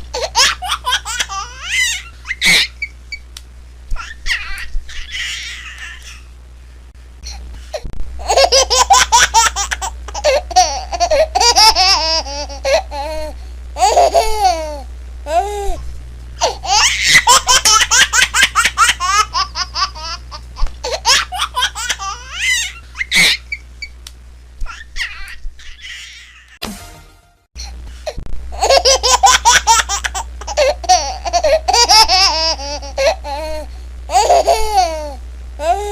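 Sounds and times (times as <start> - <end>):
steady low hum: 0.0 - 35.9
baby laughing: 0.2 - 2.9, 4.0 - 6.3, 8.2 - 15.5, 16.4 - 23.6, 24.6 - 26.6, 28.6 - 35.9
baby squealing: 0.4 - 2.9.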